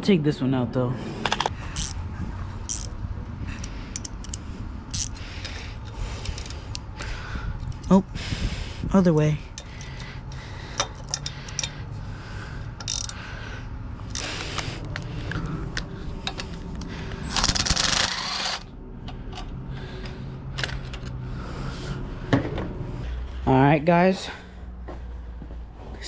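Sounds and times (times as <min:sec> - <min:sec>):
metal parts clicking and rattling: 0:01.2 - 0:02.0, 0:02.6 - 0:03.0, 0:03.6 - 0:06.8, 0:09.5 - 0:11.8, 0:12.8 - 0:13.2, 0:14.1 - 0:19.6, 0:20.5 - 0:21.2.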